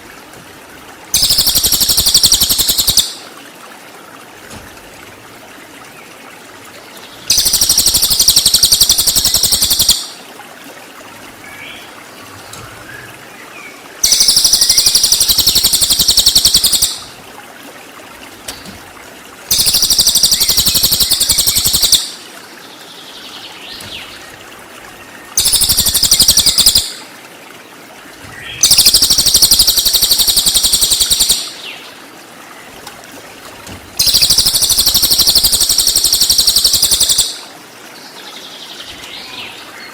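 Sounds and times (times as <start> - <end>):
shrill bird song bursts: 1.2 - 3.2, 7.3 - 10.1, 14.0 - 17.0, 19.5 - 22.1, 25.4 - 27.0, 28.4 - 31.8, 34.0 - 37.4
faint bird chirps: 28.4 - 31.8, 34.0 - 37.4.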